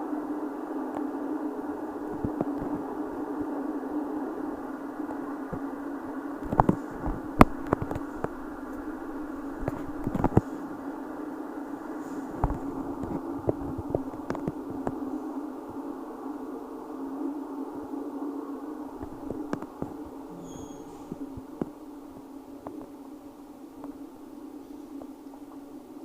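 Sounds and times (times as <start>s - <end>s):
train hum inside carriage: 0.0s - 26.0s.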